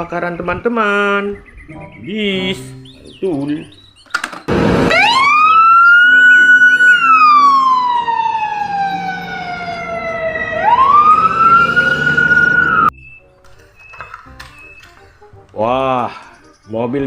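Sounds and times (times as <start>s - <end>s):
fire engine wail siren: 4.5s - 12.9s.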